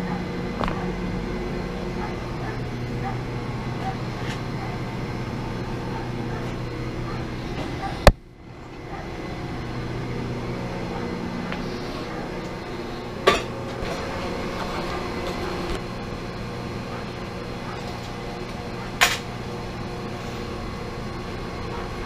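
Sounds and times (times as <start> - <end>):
electric hum of machinery: 0.0 - 22.0.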